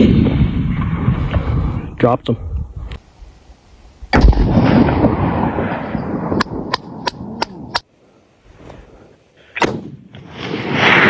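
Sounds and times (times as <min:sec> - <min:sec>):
rifle shot rumbling: 0:04.1 - 0:07.8, 0:09.6 - 0:11.0
sharp gunshot cracks: 0:04.1 - 0:07.8, 0:09.6 - 0:11.0.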